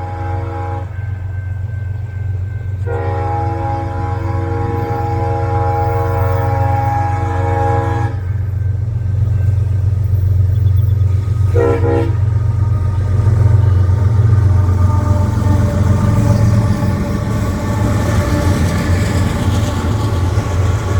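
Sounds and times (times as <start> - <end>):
locomotive horn chord: 0.0 - 1.3, 2.7 - 8.5, 11.4 - 19.3
passing train rumble: 0.0 - 20.9.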